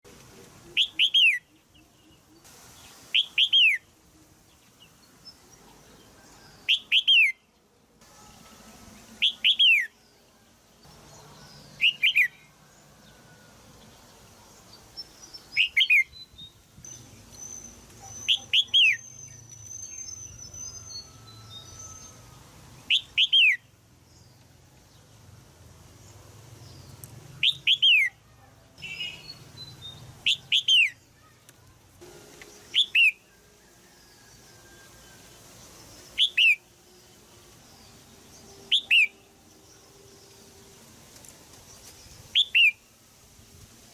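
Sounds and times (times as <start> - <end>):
bird harsh chirping calls: 6.6 - 7.4, 9.2 - 10.0, 11.0 - 12.6, 15.0 - 22.3, 22.9 - 23.7, 27.4 - 31.5, 32.5 - 33.4, 35.9 - 36.8, 38.4 - 40.0, 42.3 - 42.8
faint high bird twittering: 14.9 - 23.6, 26.7 - 31.7.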